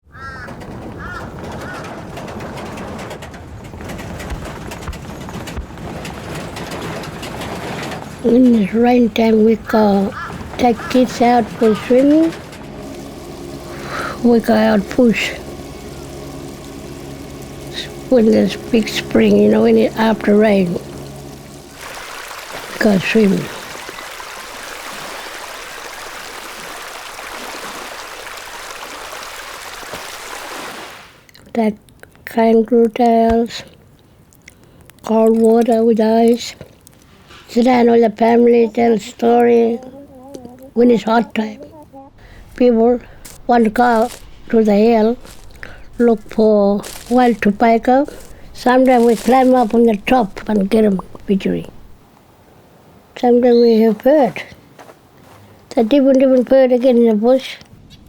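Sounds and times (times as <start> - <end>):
running water rushing: 0.0 - 31.3, 33.8 - 57.6
outdoor ambience hiss: 0.1 - 58.0.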